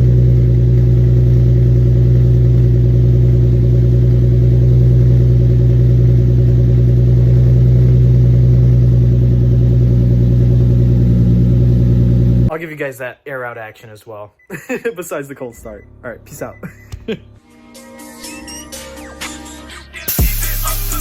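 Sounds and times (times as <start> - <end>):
car engine idling: 0.0 - 12.5, 15.5 - 17.4.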